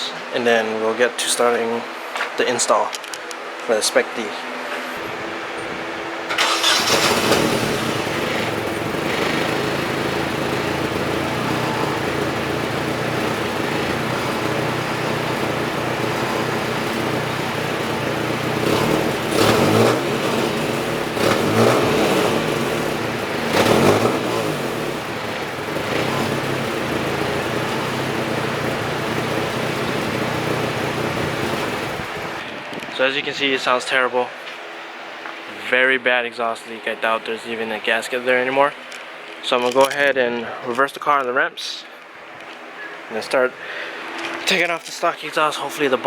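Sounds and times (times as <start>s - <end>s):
car engine starting and idling: 5.0s - 32.5s
engine revving: 6.2s - 32.4s.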